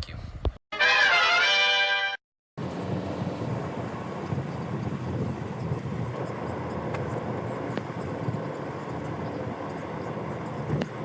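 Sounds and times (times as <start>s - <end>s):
moving vehicle rumble: 2.6s - 11.0s.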